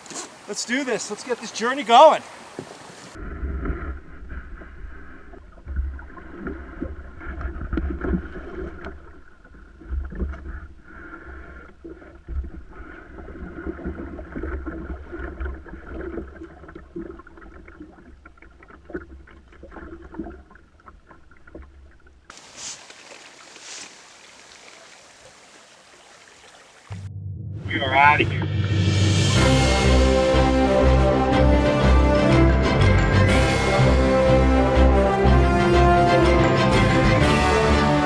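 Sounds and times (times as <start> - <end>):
paddle strokes: 0.0 - 3.2, 22.3 - 27.1
running water rushing: 0.0 - 3.2, 22.3 - 27.1
water splashing against hull: 0.0 - 27.1.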